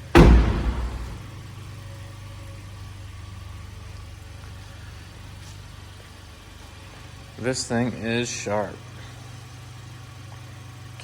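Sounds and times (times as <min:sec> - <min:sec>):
loud thump: 0:00.0 - 0:01.5
car engine idling: 0:00.0 - 0:11.0.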